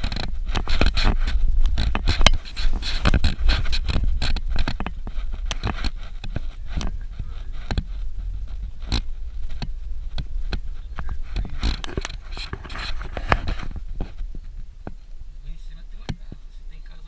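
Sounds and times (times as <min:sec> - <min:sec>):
knocks and rattles: 0:00.0 - 0:15.0
vehicle rumbling on dirt road: 0:00.0 - 0:17.0.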